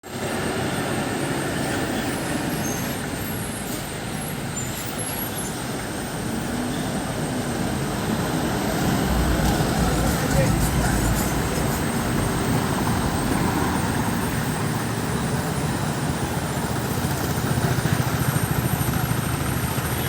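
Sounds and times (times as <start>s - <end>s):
road noise: 0.0s - 20.0s
heavy diesel engine running: 6.0s - 20.0s.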